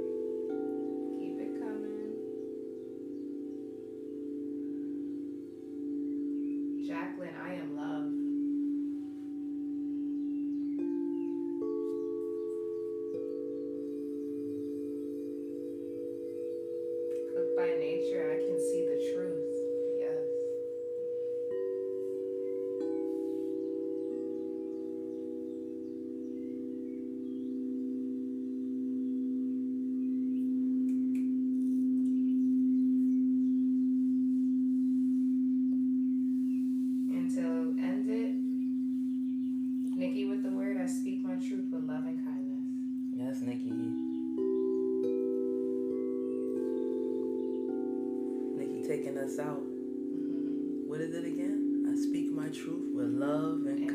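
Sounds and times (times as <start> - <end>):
singing bowls ringing: 0.0 - 53.9
faint bird chirps: 22.2 - 41.5.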